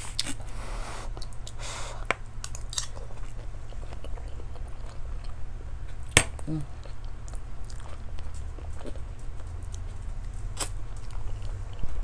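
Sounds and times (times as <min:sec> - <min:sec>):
chewing food: 0:02.4 - 0:12.0.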